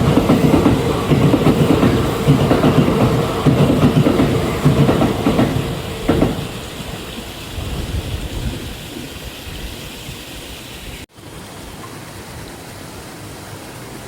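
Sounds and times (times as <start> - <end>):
train wheels clattering over rail joints: 0.0 - 7.8
steady hiss: 0.0 - 14.0.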